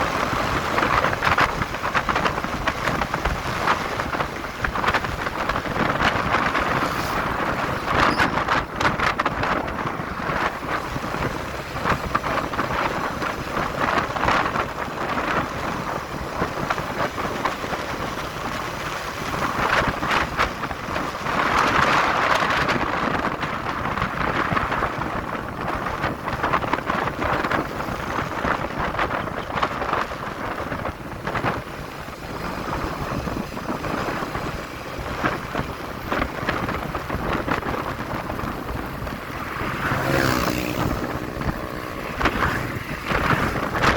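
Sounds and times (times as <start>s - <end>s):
motorcycle running: 0.0s - 43.9s
road noise: 0.0s - 43.9s
wind buffeting microphone: 0.0s - 43.9s.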